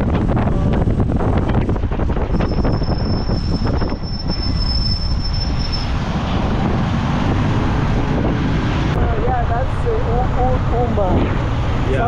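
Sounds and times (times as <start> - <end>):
motorcycle engine and road rumble: 0.0 - 12.0
wind rushing over microphone: 0.0 - 12.0
high-pitched whine: 2.1 - 8.0.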